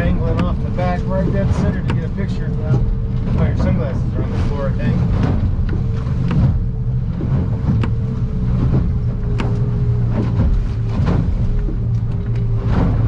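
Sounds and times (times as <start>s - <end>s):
hull knocking and slapping on waves: 0.0s - 13.0s
outboard engine running: 0.0s - 13.0s.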